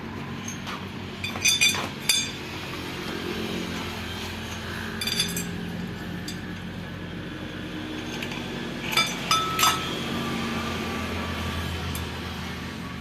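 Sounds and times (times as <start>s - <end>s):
metal tools clinking: 0.4s - 2.5s, 4.4s - 6.6s, 8.0s - 10.0s.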